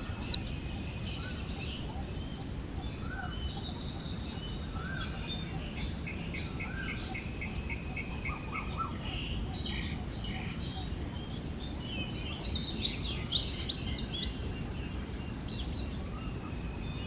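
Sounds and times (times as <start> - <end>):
birds chirping: 0.0 - 5.0
insect drone: 0.0 - 17.0.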